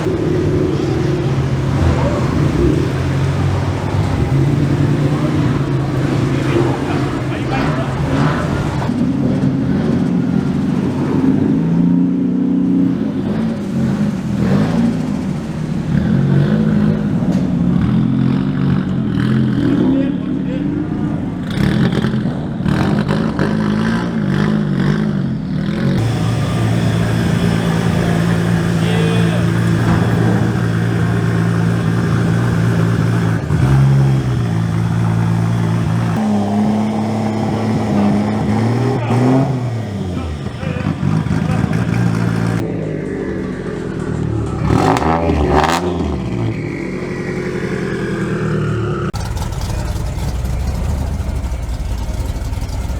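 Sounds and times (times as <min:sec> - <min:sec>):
loud car engine running: 0:00.0 - 0:52.9.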